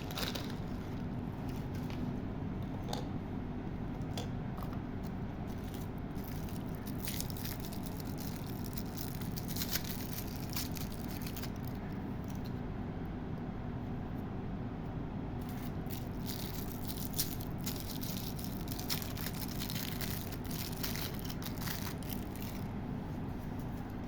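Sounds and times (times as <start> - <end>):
hard candies rattling: 0.0 - 1.0, 5.5 - 12.4, 15.4 - 22.7
candy packaging crackling: 0.0 - 1.9, 5.5 - 12.5, 15.4 - 24.0
low background hum: 0.0 - 24.0.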